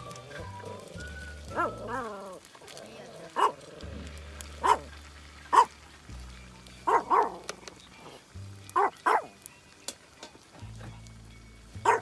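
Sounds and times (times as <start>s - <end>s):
background music with bass line: 0.0s - 2.4s, 3.7s - 10.0s, 10.6s - 12.0s
dog barking: 3.3s - 3.6s, 4.6s - 4.9s, 5.5s - 5.7s, 6.9s - 7.4s, 8.8s - 9.3s.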